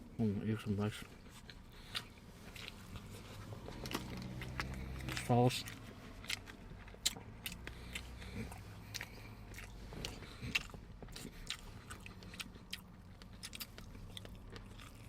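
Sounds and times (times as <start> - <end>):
person chewing crunchy meat: 1.1 - 15.0.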